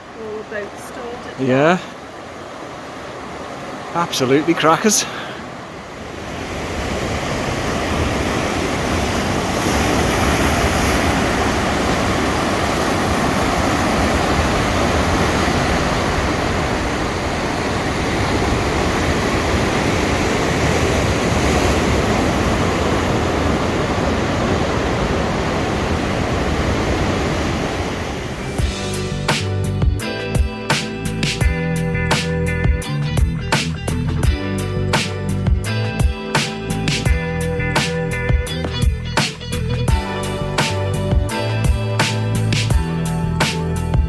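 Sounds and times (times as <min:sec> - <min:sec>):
ocean surf breaking on rocks: 0:00.0 - 0:28.9.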